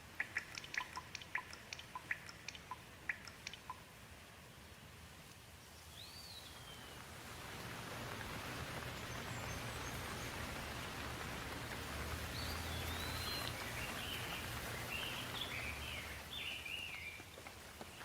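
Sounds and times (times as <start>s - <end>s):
steady rain falling: 0.0s - 18.0s
bird chirping: 0.2s - 3.8s, 5.7s - 7.0s, 12.2s - 18.0s.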